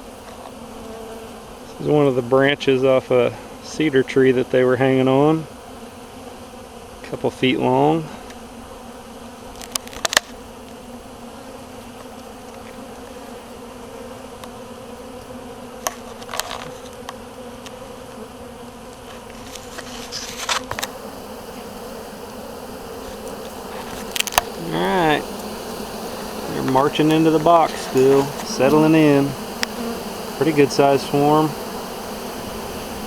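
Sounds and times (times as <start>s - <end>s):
bee swarm buzzing: 0.0s - 33.0s.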